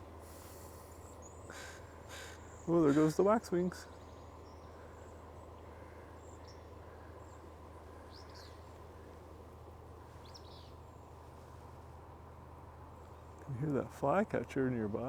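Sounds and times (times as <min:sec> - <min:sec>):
distant songbird calling: 0:00.0 - 0:11.9
steady low hum: 0:00.0 - 0:15.0.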